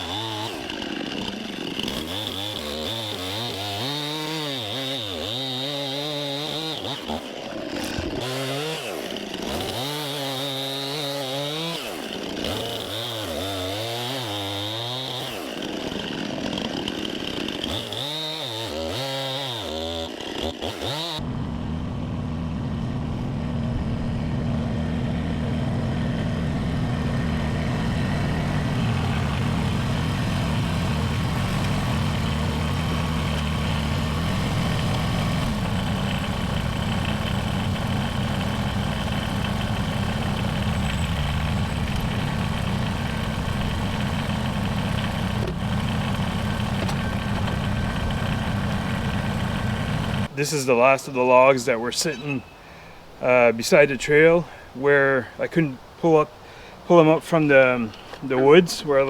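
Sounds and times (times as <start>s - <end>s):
chainsaw cutting logs: 0.0s - 59.0s
engine idling: 21.2s - 50.3s.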